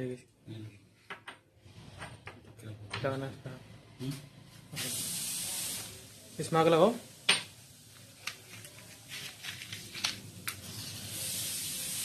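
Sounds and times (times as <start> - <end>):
steady hiss of flame: 4.7 - 8.3, 10.4 - 12.0.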